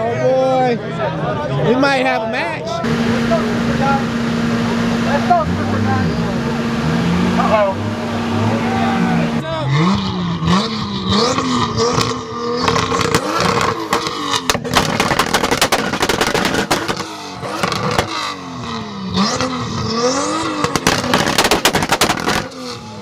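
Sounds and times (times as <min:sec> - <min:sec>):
car engines revving: 0:01.8 - 0:22.8
exhaust popping and banging: 0:02.4 - 0:09.4, 0:12.7 - 0:18.1, 0:20.6 - 0:22.6.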